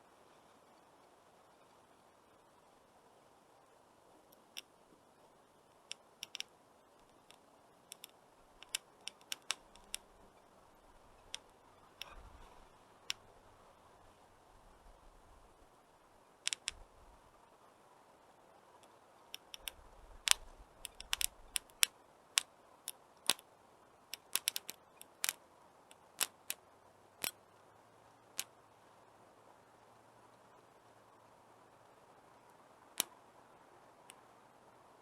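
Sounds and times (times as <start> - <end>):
faint steady hiss: 0.0 - 35.0
wood fire crackling: 7.9 - 13.5.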